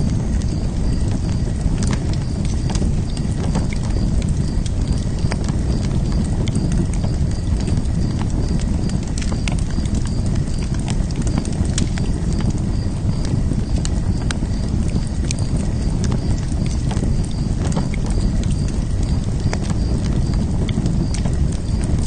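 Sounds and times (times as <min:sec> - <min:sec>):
fire crackling and popping: 0:00.0 - 0:22.0
low rumble of flames: 0:00.0 - 0:22.0.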